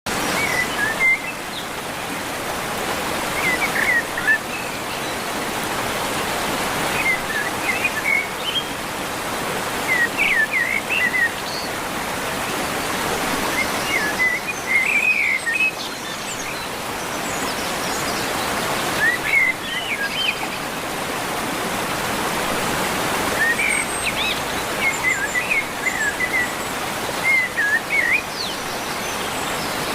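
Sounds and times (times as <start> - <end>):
stream water rushing: 0.1 - 29.9.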